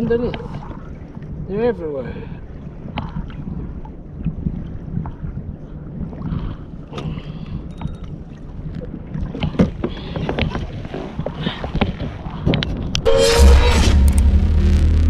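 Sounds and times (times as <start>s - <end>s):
water lapping against hull: 0.0s - 13.1s.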